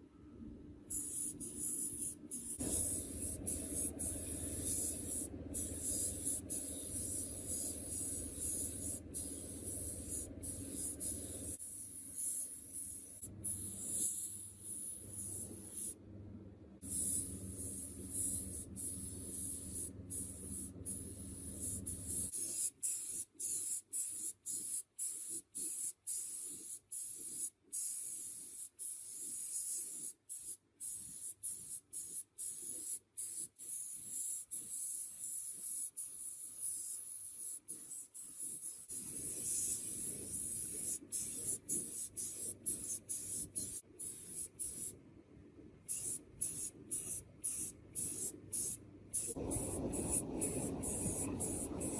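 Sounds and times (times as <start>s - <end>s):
spray hissing in bursts: 0.9s - 16.0s, 45.9s - 51.9s.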